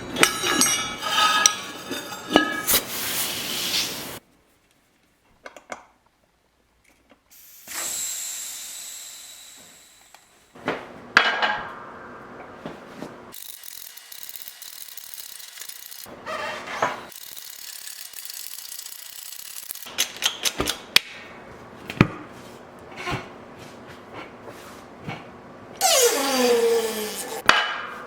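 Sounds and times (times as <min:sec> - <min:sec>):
metal knocks and scraping: 0:00.0 - 0:02.8
air hiss: 0:02.7 - 0:04.2.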